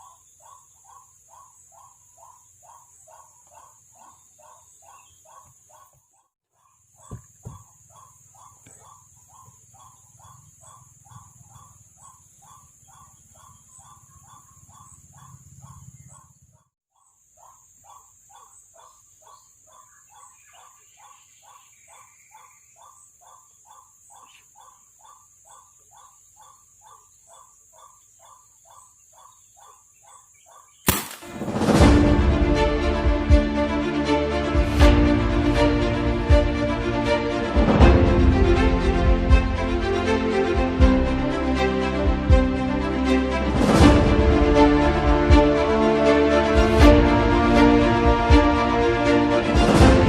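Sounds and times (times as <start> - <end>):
loud music: 31.3 - 50.0.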